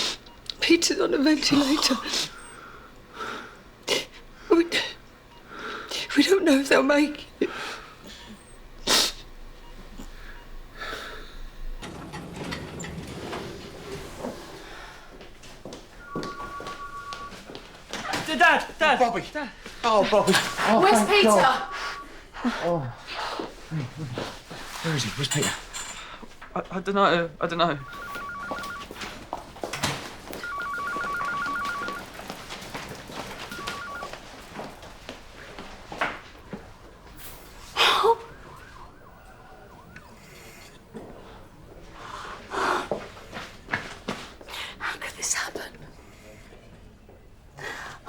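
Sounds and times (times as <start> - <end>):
electronic two-tone trill: 27.8 - 28.9, 30.4 - 32.0, 33.6 - 34.1.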